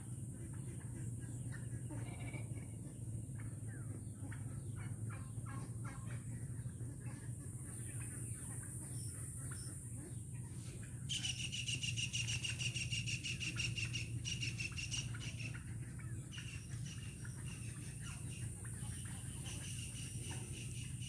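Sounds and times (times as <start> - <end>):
low background hum: 0.0 - 21.0
bird chirping trill: 11.0 - 21.0.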